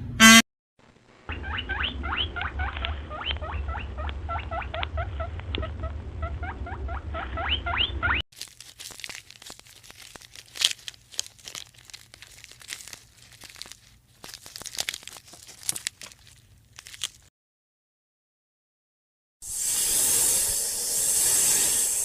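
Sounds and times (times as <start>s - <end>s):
crackling and crunching clicks: 8.3s - 17.3s.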